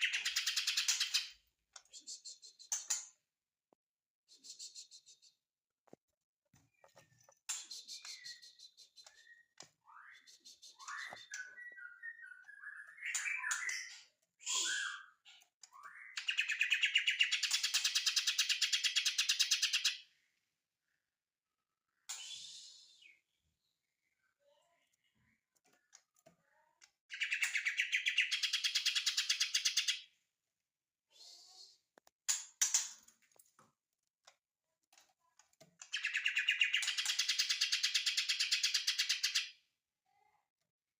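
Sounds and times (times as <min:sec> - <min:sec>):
bird singing chirps and whistles: 0:07.7 - 0:17.4, 0:35.9 - 0:39.2.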